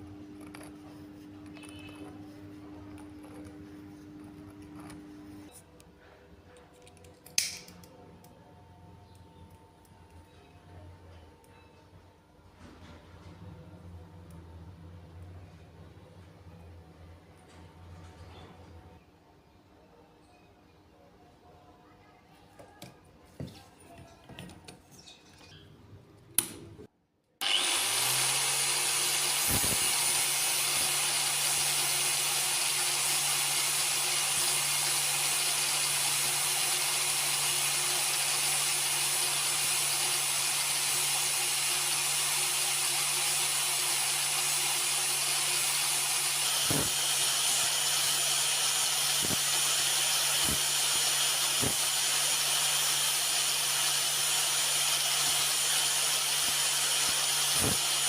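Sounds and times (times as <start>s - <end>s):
electric power tool running: 27.4s - 58.0s.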